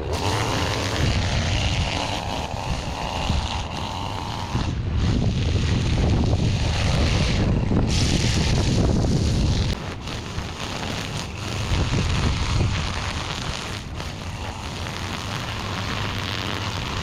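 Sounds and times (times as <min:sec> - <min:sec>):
string trimmer engine running: 0:00.0 - 0:17.0.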